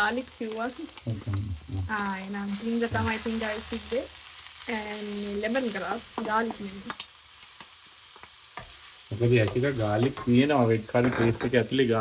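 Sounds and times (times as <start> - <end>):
vegetables sizzling in oil: 0.0 - 12.0
man's voice: 1.1 - 1.9, 2.9 - 3.2, 9.1 - 12.0.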